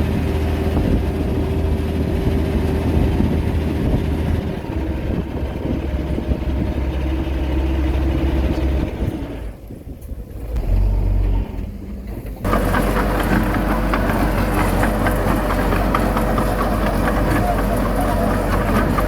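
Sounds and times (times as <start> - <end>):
heavy diesel engine running: 0.0 - 19.0
dense rattle: 10.5 - 19.0.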